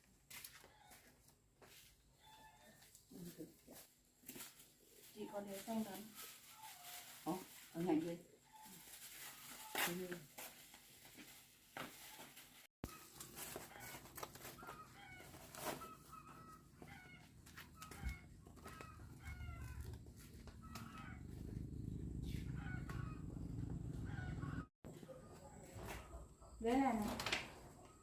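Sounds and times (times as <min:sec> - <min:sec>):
low engine rumble: 0:19.6 - 0:24.7.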